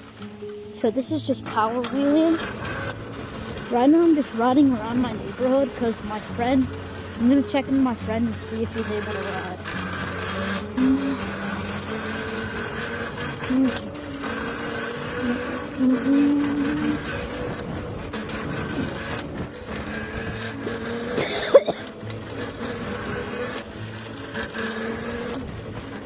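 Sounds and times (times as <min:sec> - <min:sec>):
electric motor whining: 0:00.0 - 0:26.0
road and wind noise: 0:00.0 - 0:26.0.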